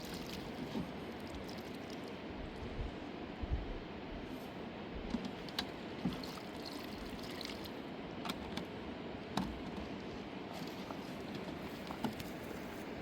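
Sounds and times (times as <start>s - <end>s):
running water rushing: 0.0s - 2.2s
water trickling and splashing: 0.0s - 2.3s, 5.4s - 7.8s, 10.5s - 13.0s.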